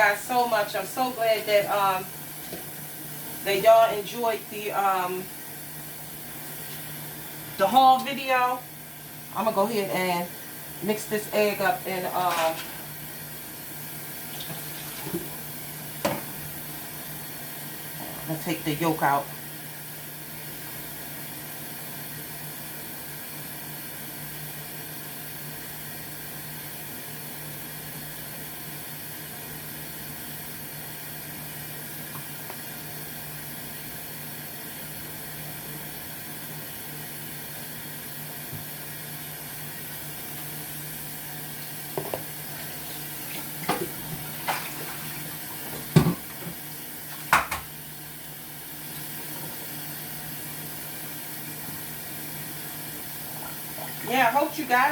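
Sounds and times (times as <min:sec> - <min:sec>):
sink tap running: 0:09.3 - 0:19.2, 0:39.6 - 0:54.9.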